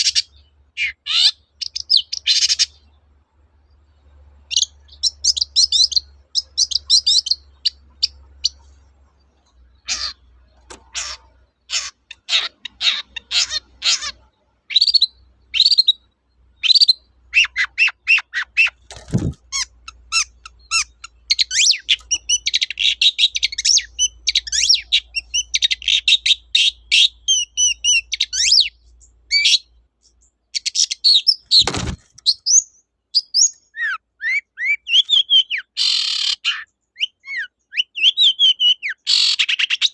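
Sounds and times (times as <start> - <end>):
bird singing chirps and trills: 0.0 - 39.9.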